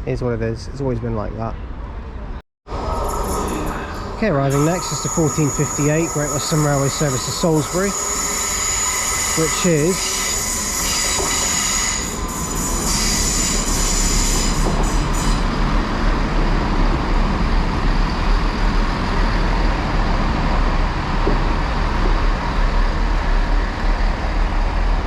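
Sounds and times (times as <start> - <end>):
diesel train engine rumble: 0.0 - 25.0
train brakes squealing: 2.8 - 15.8.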